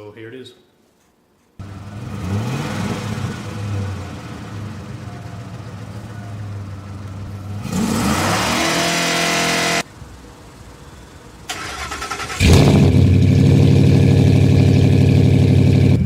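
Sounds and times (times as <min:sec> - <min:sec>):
truck engine revving and idling: 0:01.6 - 0:09.9, 0:11.6 - 0:16.0.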